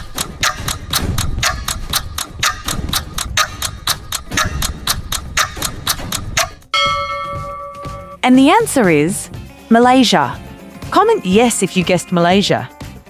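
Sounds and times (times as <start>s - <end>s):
clock ticking: 0.0s - 8.7s
low rumble: 0.7s - 8.3s.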